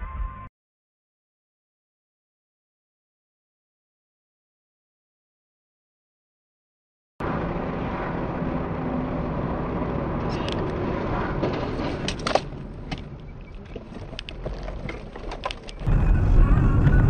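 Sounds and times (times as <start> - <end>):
car engine and road rumble: 7.2 - 17.0.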